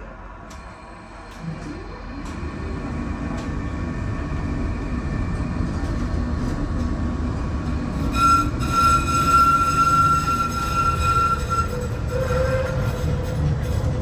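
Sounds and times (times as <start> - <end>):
tram rumbling on rails: 0.0 - 14.0
high steady squeal: 7.9 - 13.9.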